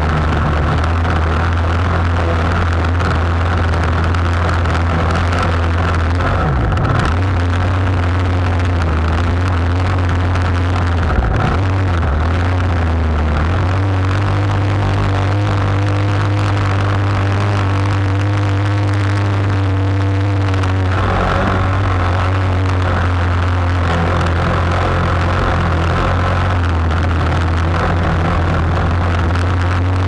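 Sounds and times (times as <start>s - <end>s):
boat engine humming: 13.8s - 30.0s.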